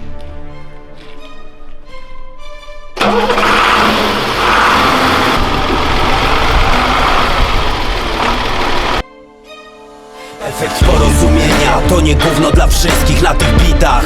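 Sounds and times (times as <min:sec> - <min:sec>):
monster truck engine running: 0:03.0 - 0:09.0.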